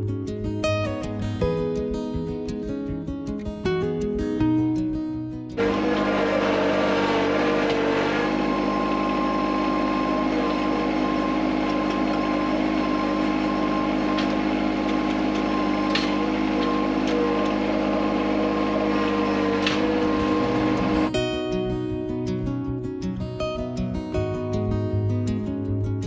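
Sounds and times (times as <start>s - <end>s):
tractor diesel engine running: 5.6s - 21.2s.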